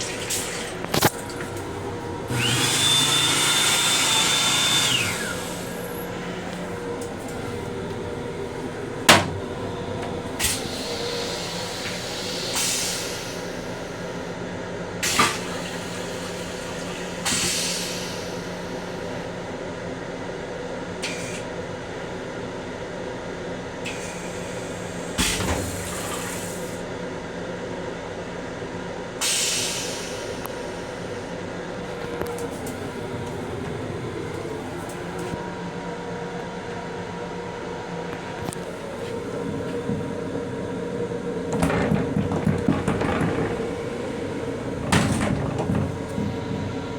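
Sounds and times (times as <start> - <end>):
railcar hum: 0.0 - 2.8, 4.9 - 19.6, 29.2 - 46.9.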